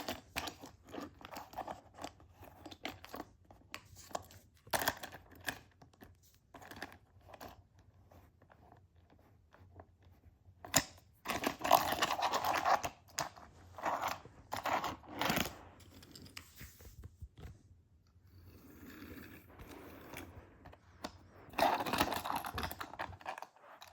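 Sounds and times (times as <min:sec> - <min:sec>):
crinkling and rustling: 0:00.0 - 0:23.9.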